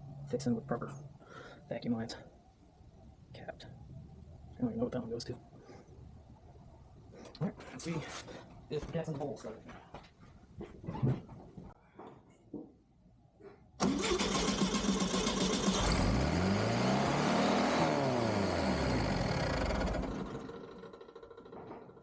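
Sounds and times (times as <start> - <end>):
car engine starting and revving: 13.8 - 21.2.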